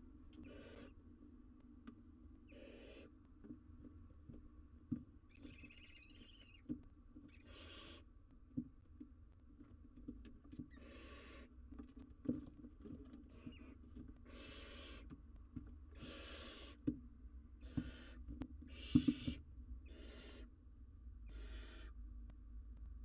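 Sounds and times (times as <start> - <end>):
soft knocks and scrapes: 11.8 - 14.2.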